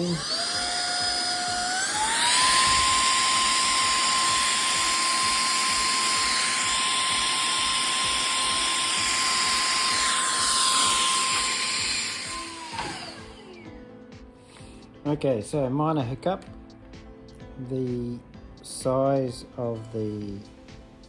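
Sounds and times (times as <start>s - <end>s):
handheld vacuum motor whine: 0.0s - 13.9s.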